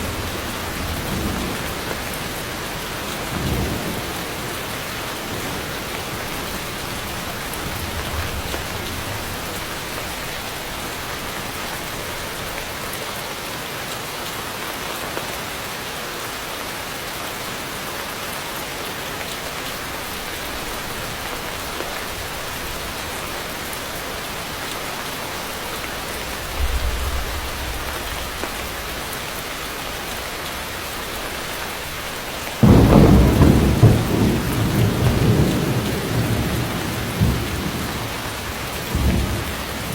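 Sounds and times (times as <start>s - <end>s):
low thunder rumbles: 0.0s - 12.5s, 26.0s - 30.3s, 32.6s - 39.9s
heavy rain falling: 0.0s - 39.9s
loud thunderclap: 26.4s - 29.1s, 32.6s - 39.9s.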